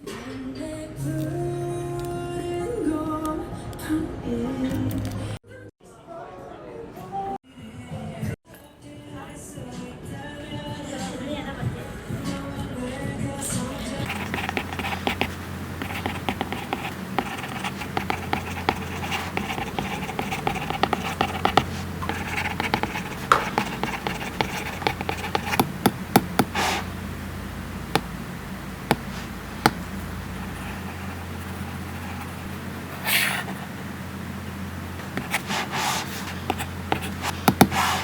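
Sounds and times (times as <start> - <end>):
stylus scratching on screen: 14.0 - 27.0, 28.8 - 33.7, 35.0 - 38.0
stylus tip taps: 22.8 - 26.6.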